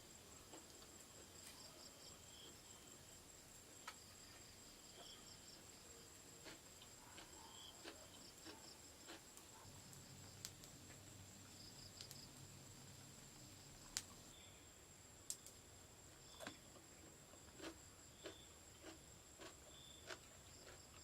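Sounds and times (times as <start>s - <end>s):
insect chorus whine: 0.0s - 21.0s
rapid pulsed insect chirping: 1.0s - 16.5s
faint clicks: 13.8s - 14.2s.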